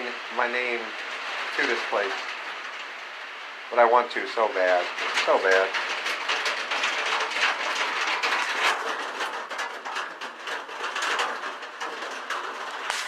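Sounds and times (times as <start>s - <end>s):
heavy rain on a roof: 0.0s - 13.0s.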